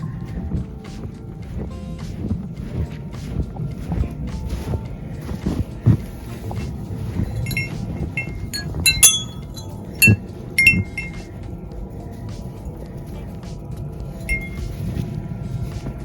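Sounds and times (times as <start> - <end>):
low rumble: 0.0 - 16.0
metallic clinks: 7.2 - 11.3, 14.1 - 14.8
short ringing chimes: 7.4 - 11.2, 14.3 - 14.7.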